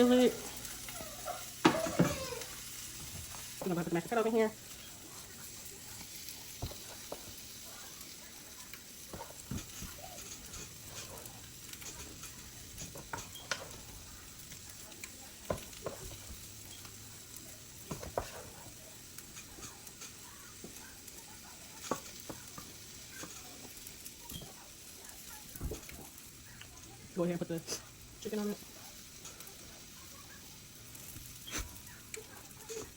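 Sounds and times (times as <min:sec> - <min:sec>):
food sizzling in a skillet: 0:00.0 - 0:32.9
utensil scraping a pan: 0:09.1 - 0:14.0, 0:17.9 - 0:20.3.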